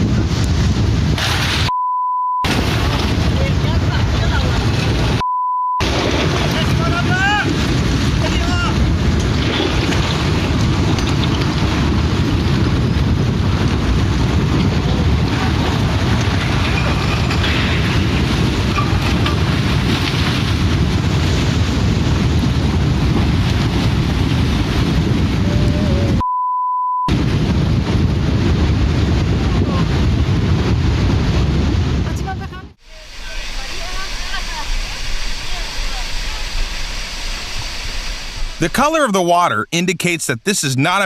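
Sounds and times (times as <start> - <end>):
wind buffeting microphone: 0.0 - 1.7, 5.8 - 26.2, 27.1 - 38.6
censor bleep: 1.7 - 2.5, 5.2 - 5.8, 26.2 - 27.1.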